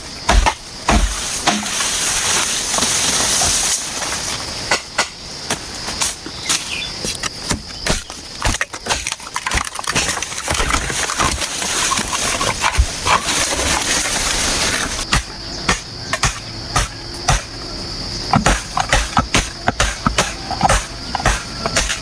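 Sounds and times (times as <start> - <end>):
bamboo knocking and clattering: 0.2 - 17.7, 18.3 - 22.0
rustling and scraping: 1.0 - 4.7, 5.6 - 15.1
high insect buzz: 10.0 - 22.0.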